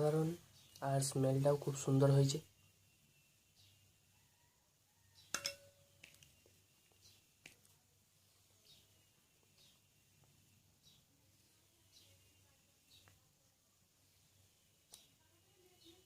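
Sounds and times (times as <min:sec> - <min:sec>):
short ringing clink: 0:05.4 - 0:05.8.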